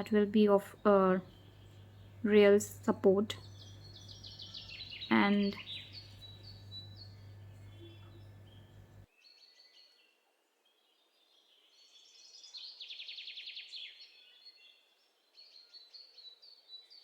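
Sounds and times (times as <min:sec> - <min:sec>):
birds chirping: 0:00.0 - 0:09.0
bird trill: 0:00.7 - 0:09.4.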